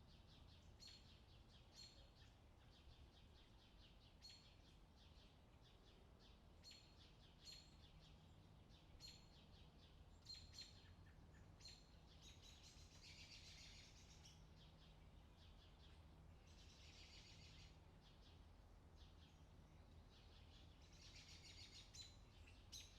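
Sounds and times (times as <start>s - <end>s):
faint birdsong chirps: 0.0s - 22.9s
faint low hum: 0.0s - 22.9s.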